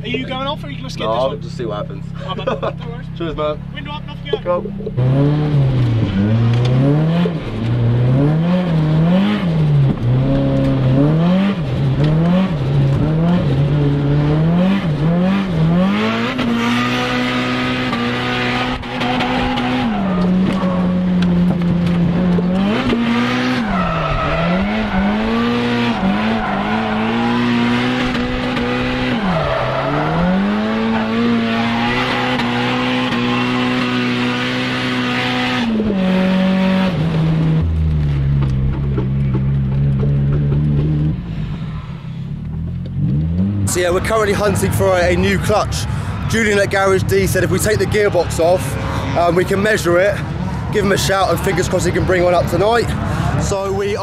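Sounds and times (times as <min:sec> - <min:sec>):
car engine revving hard: 0:05.0 - 0:37.8
tyres squealing: 0:18.8 - 0:21.5, 0:23.0 - 0:35.0.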